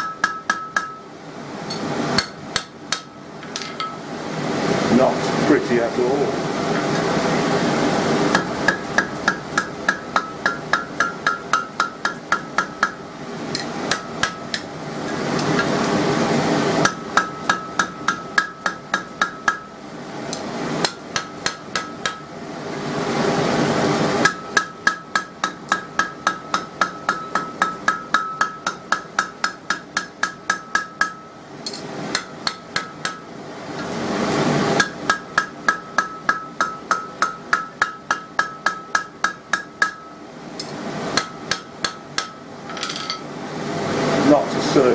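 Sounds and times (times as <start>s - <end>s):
hammer ringing on anvil: 0.0s - 1.1s, 8.7s - 13.0s, 24.2s - 33.2s, 34.8s - 40.2s, 41.2s - 43.3s
forge air blower rushing: 4.0s - 9.9s, 13.0s - 16.9s, 22.4s - 24.3s, 33.4s - 35.0s, 43.3s - 44.9s.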